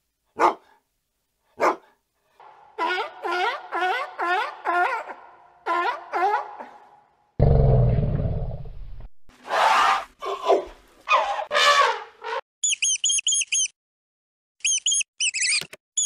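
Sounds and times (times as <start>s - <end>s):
elephant calling: 2.7s - 6.1s
mice squeaking: 12.6s - 13.7s, 14.6s - 16.0s.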